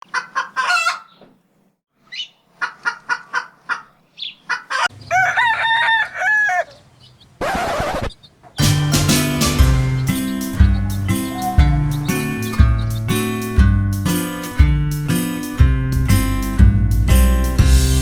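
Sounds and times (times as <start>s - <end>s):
chickens clucking: 2.1s - 14.6s
rooster crowing: 4.7s - 7.6s, 8.6s - 13.5s.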